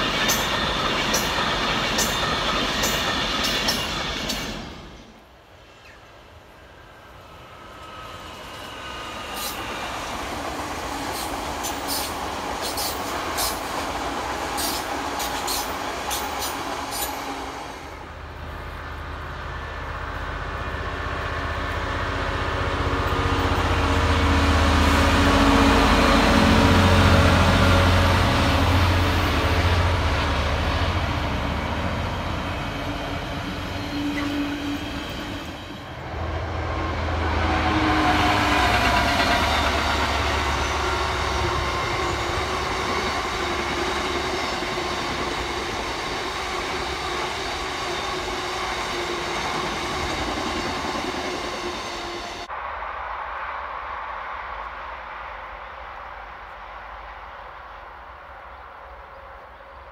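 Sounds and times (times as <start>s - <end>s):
train wheel clicks: 0.0s - 4.7s, 11.1s - 17.3s
diesel locomotive engine: 0.0s - 59.9s
distant electric train passing: 0.0s - 59.9s
diesel locomotive rumble: 7.0s - 52.6s.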